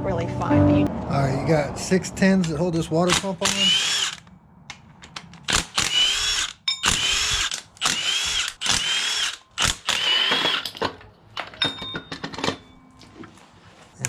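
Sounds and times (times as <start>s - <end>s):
cordless power tool whining: 3.4s - 4.3s, 5.5s - 10.7s.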